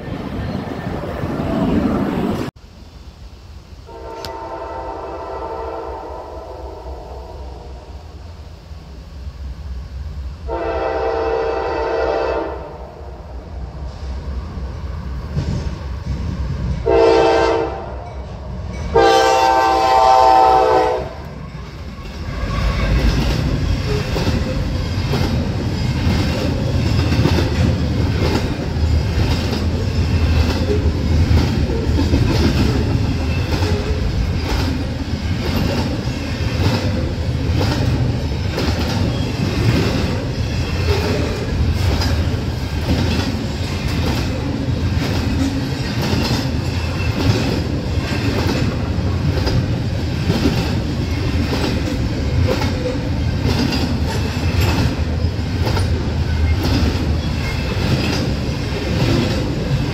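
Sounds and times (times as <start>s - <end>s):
diesel locomotives rumbling past: 0.0s - 59.9s
locomotive horn blasts: 3.9s - 7.8s, 10.5s - 12.8s, 16.8s - 18.0s, 18.9s - 21.2s
train wheels clacking on rails: 15.2s - 16.9s, 18.0s - 59.9s.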